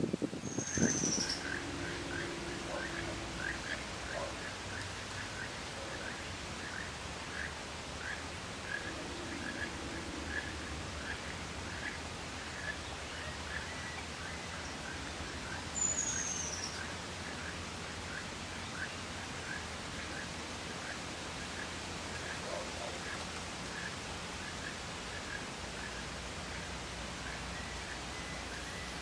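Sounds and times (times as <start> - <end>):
low outdoor rumble: 0.6 - 15.7.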